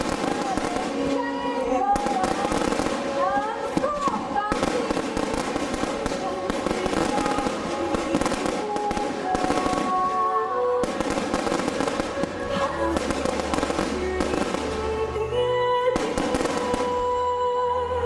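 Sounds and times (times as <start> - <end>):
fireworks crackling and popping: 0.0 - 17.2
loud music playing: 0.0 - 18.0.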